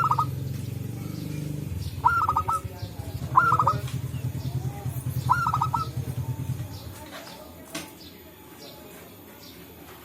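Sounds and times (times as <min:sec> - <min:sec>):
doves cooing: 0:00.0 - 0:06.7
low rhythmic pulsing: 0:00.0 - 0:06.8.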